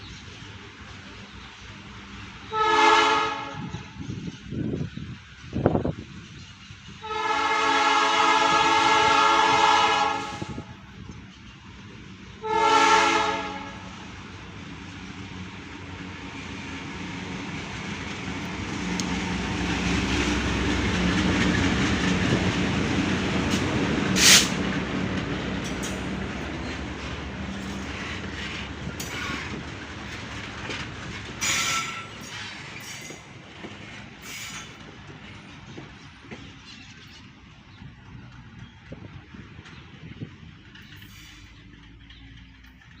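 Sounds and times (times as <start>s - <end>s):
train rumbling past: 0.0s - 43.0s
locomotive horn blasts: 2.5s - 3.7s, 7.0s - 10.7s, 12.4s - 13.9s
wheels clacking over rails: 15.8s - 37.1s.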